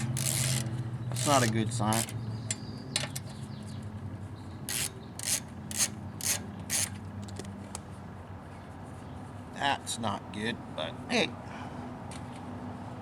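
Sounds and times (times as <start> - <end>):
ratchet wrench ratcheting: 0.0 - 2.2, 4.7 - 7.4.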